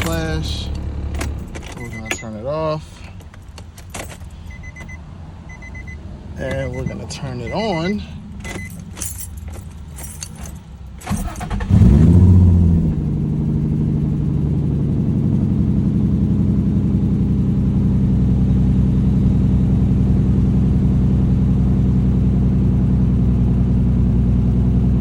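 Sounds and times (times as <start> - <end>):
car engine cranking and starting: 0.0 - 17.1
car engine idling: 0.0 - 25.0.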